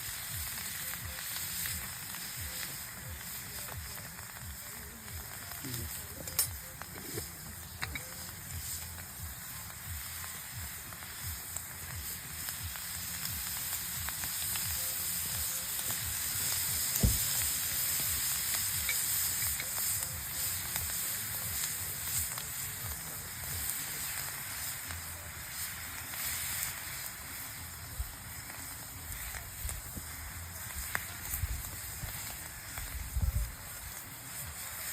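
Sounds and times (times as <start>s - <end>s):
food sizzling in frying: 0.0s - 34.9s
sharp knock: 17.0s - 17.2s.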